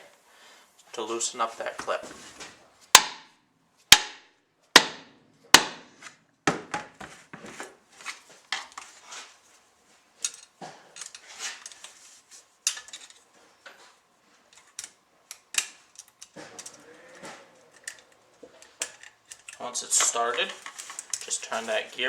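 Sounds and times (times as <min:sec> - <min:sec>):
sharp metal knocks: 0:03.0 - 0:03.3, 0:03.9 - 0:04.2, 0:04.8 - 0:05.8.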